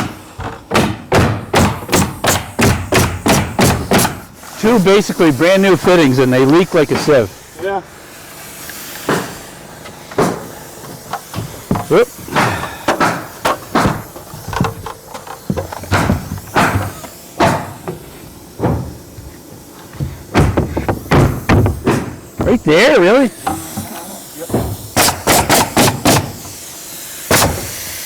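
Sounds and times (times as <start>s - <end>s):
sharp knocks: 0.0s - 4.2s, 11.4s - 14.8s, 15.5s - 18.0s, 20.0s - 22.6s, 24.5s - 26.4s.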